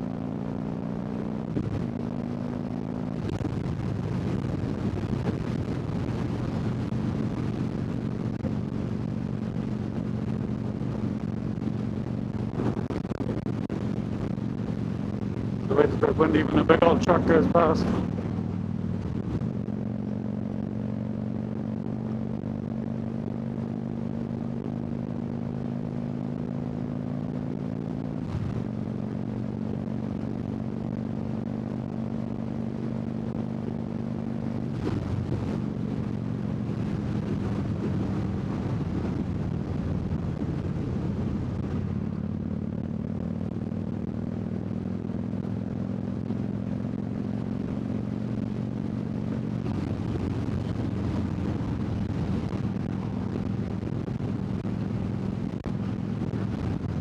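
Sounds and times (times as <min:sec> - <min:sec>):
motorcycle engine running: 0:00.0 - 0:57.0
wind rush: 0:01.5 - 0:21.0, 0:34.5 - 0:45.1, 0:46.8 - 0:57.0.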